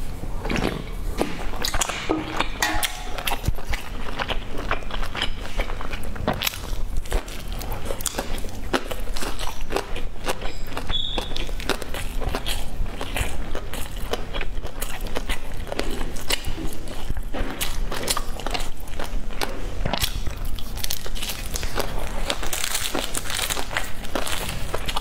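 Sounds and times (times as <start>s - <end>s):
wet chewing mouth clicks: 3.2s - 25.0s
plastic wrapper rustling: 20.8s - 25.0s.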